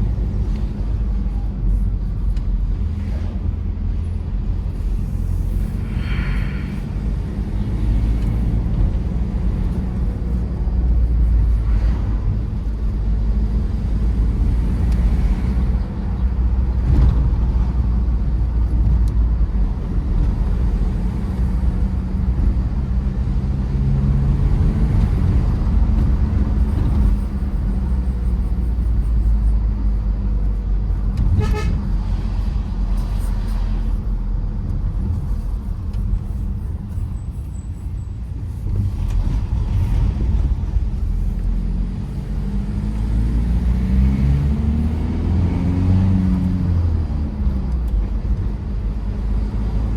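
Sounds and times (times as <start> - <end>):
diesel engine and road noise: 0.0 - 49.9
vehicle horn: 31.2 - 32.0.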